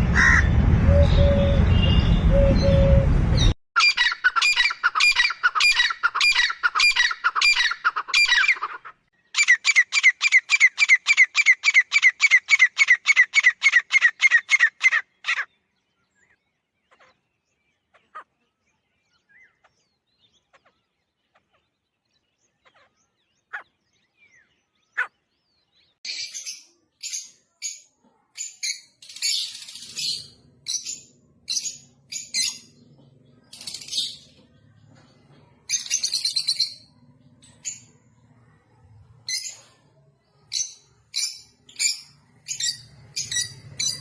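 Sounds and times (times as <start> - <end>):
faint bird chirps: 3.8 - 44.0.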